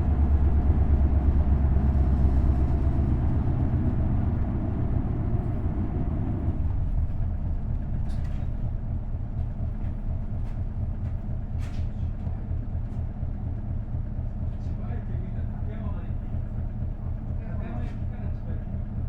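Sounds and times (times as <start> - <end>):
bus engine rumbling: 0.0 - 19.0
light cabin rattles: 6.9 - 13.1.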